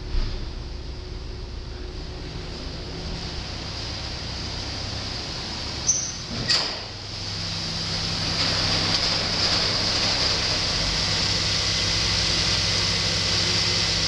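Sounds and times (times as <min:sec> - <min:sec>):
car engine humming: 0:00.0 - 0:14.0.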